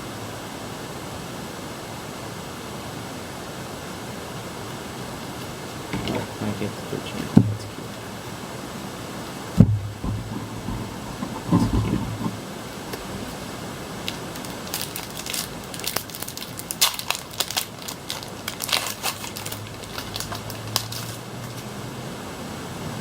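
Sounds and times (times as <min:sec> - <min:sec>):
foil wrapper crinkling: 0:12.9 - 0:21.7.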